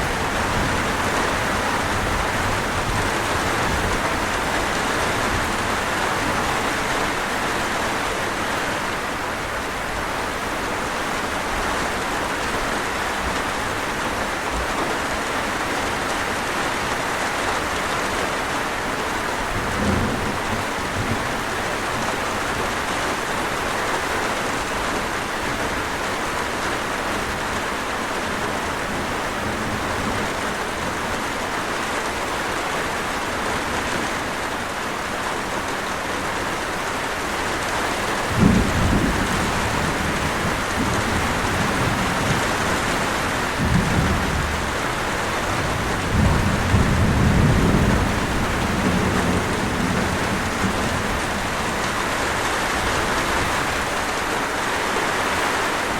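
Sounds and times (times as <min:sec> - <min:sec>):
steady rain falling: 0:00.0 - 0:55.9
thunder rumbling: 0:38.2 - 0:54.2.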